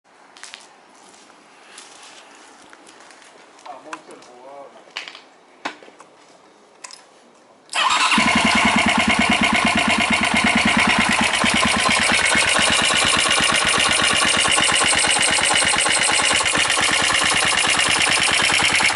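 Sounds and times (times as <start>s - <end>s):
motorcycle engine starting and running: 7.7s - 18.9s.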